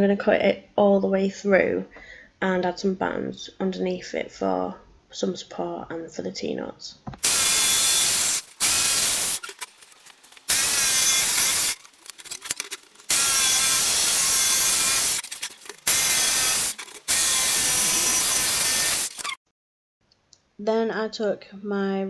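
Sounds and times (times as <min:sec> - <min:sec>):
power saw cutting board: 0:07.2 - 0:19.4.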